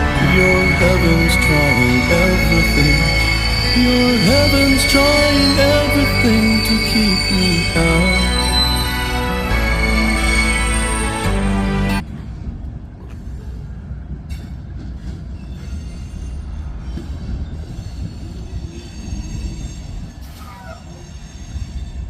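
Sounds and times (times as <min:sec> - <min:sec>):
song playing: 0:00.0 - 0:12.0
wheel squeal: 0:00.0 - 0:12.0, 0:15.0 - 0:22.0
railcars rumbling on rails: 0:00.0 - 0:22.0.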